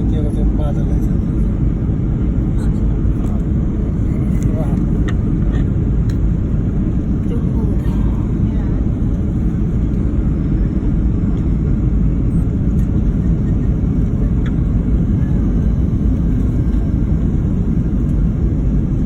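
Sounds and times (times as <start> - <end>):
airliner cabin engine rumble: 0.0 - 19.0.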